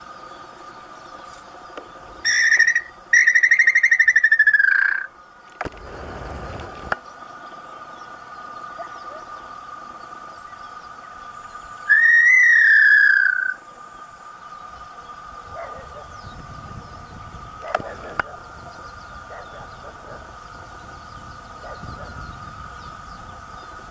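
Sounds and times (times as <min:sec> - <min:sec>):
steady high hum: 0:00.0 - 0:23.9
bird whistling: 0:02.2 - 0:05.1, 0:11.5 - 0:13.6.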